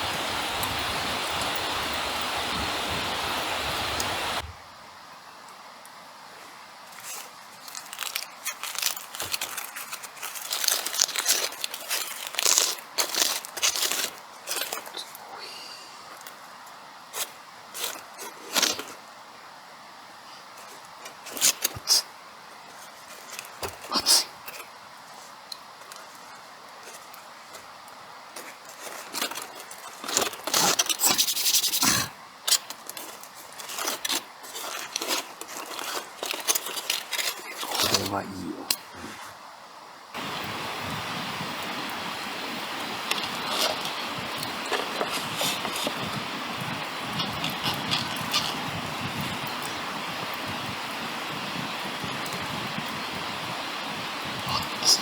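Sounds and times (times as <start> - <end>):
scraping and rubbing handling noises: 6.3 - 15.4, 16.0 - 19.1, 20.3 - 39.4, 41.7 - 50.8
crinkling and crumpling: 6.8 - 15.4, 16.0 - 19.2, 20.3 - 39.4, 41.5 - 52.8.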